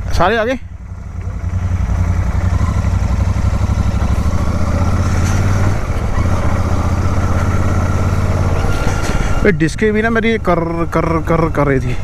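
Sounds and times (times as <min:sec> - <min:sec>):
motorcycle engine rumble: 0:00.0 - 0:12.0
wind and road noise: 0:00.0 - 0:12.0.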